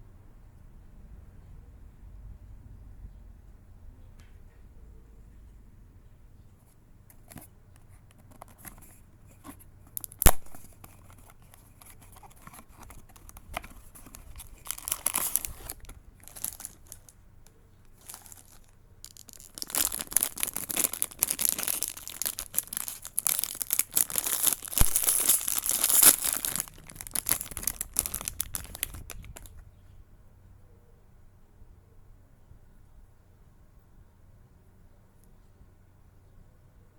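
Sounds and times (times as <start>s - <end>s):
packaging tearing and crinkling: 9.9s - 17.1s, 17.9s - 29.5s.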